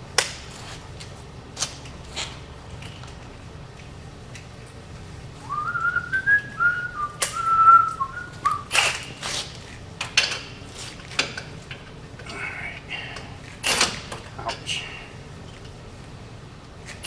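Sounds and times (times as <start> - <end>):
person whistling a tune: 5.4 - 8.7.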